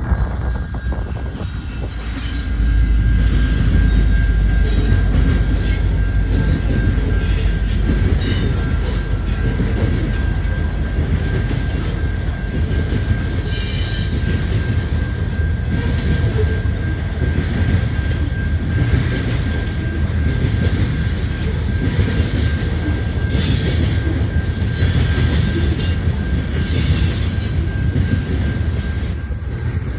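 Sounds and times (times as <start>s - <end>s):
freight train rumbling past: 0.0s - 29.9s
wheel squeals: 13.4s - 14.4s, 23.0s - 29.4s.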